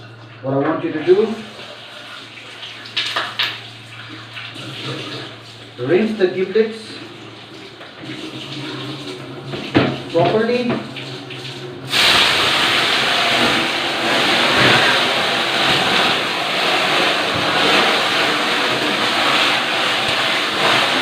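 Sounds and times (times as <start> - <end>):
gas burner hissing: 11.9 - 21.0.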